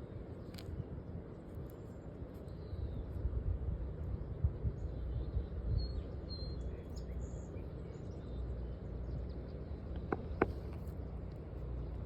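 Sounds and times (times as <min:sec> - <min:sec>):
faint bird chirps: 0:04.7 - 0:09.8.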